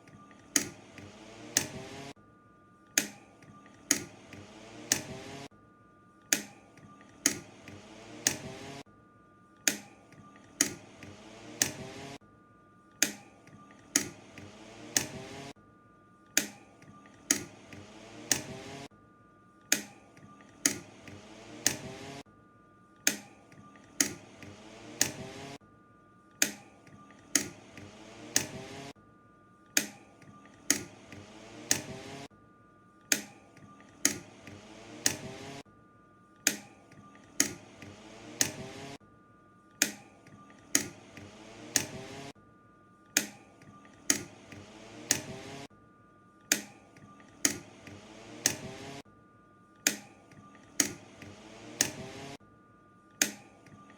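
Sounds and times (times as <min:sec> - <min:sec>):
fan push buttons clicking: 0:00.0 - 0:02.1, 0:03.0 - 0:05.5, 0:06.3 - 0:08.8, 0:09.6 - 0:12.2, 0:13.0 - 0:15.5, 0:16.4 - 0:18.9, 0:19.7 - 0:22.2, 0:23.0 - 0:25.6, 0:26.4 - 0:28.9, 0:29.7 - 0:32.3, 0:33.1 - 0:35.6, 0:36.4 - 0:39.0, 0:39.8 - 0:42.3, 0:43.2 - 0:45.7, 0:46.5 - 0:49.0, 0:49.8 - 0:52.4, 0:53.2 - 0:53.9
fan motor humming: 0:00.0 - 0:02.2, 0:02.9 - 0:05.5, 0:06.2 - 0:08.9, 0:09.5 - 0:12.2, 0:12.9 - 0:15.6, 0:16.3 - 0:18.9, 0:19.6 - 0:22.3, 0:23.0 - 0:25.6, 0:26.3 - 0:29.0, 0:29.6 - 0:32.3, 0:33.0 - 0:35.7, 0:36.3 - 0:39.0, 0:39.7 - 0:42.4, 0:43.0 - 0:45.7, 0:46.3 - 0:49.1, 0:49.7 - 0:52.4.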